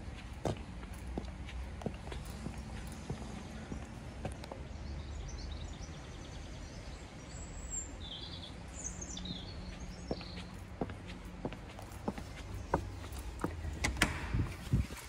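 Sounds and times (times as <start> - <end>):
footstep on paving: 0.0 - 4.6, 9.8 - 13.7
small birds chirping: 0.1 - 13.7.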